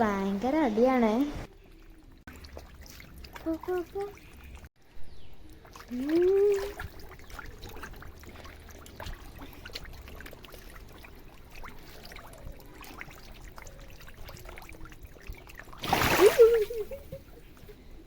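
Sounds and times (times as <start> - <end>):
water trickling in fish tank: 0.5 - 17.8
fish splashing at surface: 5.5 - 16.9.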